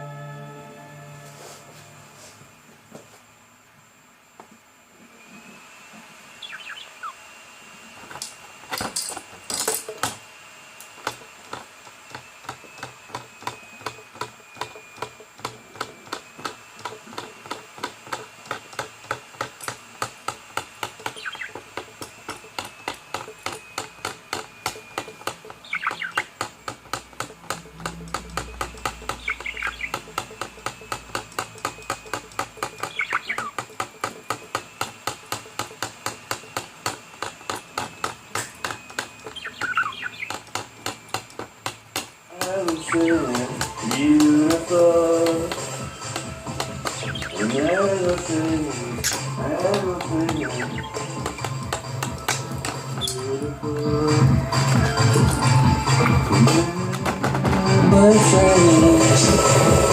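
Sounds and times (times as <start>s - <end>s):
bird chirps: 6.4s - 7.2s, 21.0s - 21.6s, 25.6s - 26.4s, 29.0s - 30.2s, 32.6s - 33.6s, 39.2s - 40.5s, 42.6s - 44.6s, 46.8s - 51.7s, 52.8s - 53.4s
fast ticking clicks: 19.6s - 34.2s, 42.4s - 53.2s.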